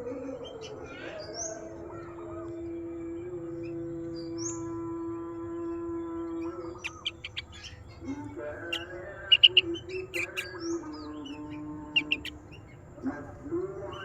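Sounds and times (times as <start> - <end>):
bulbul sharp chirps: 12.0 - 12.4.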